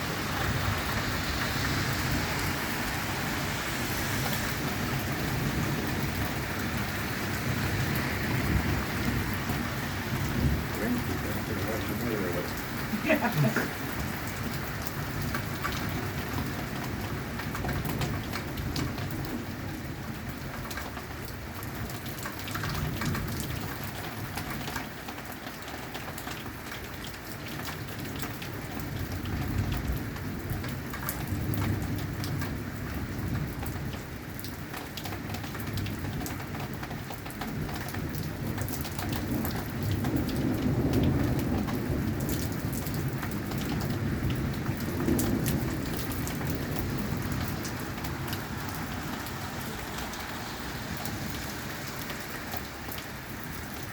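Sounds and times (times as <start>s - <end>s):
heavy rain on hard surface: 0.0s - 53.9s
thunder rumbling: 4.3s - 15.1s, 39.2s - 51.4s.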